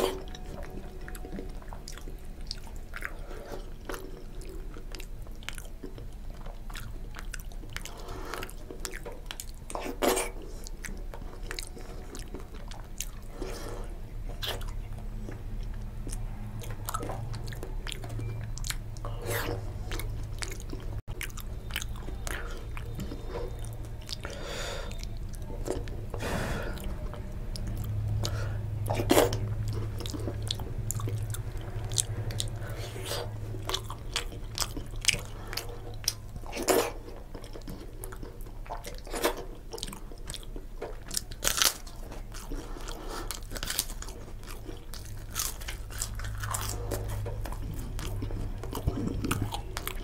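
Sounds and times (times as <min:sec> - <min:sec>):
person chewing with mouth smacks: 0:00.0 - 0:50.0.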